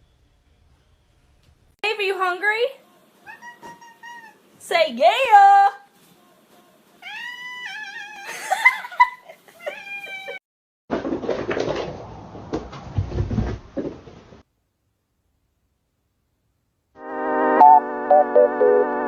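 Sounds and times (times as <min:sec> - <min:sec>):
cat meowing: 0:03.2 - 0:04.4, 0:07.0 - 0:08.3
rustling and bumps: 0:10.9 - 0:14.4.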